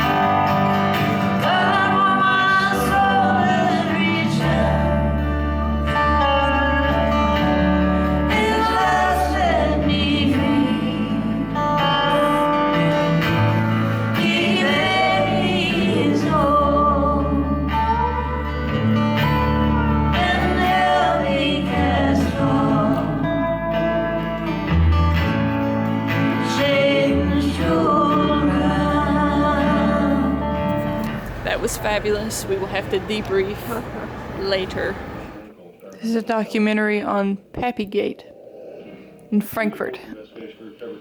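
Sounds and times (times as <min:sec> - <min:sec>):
guitar: 0:00.0 - 0:38.1
person singing: 0:01.2 - 0:07.2, 0:14.0 - 0:23.7, 0:26.2 - 0:31.2.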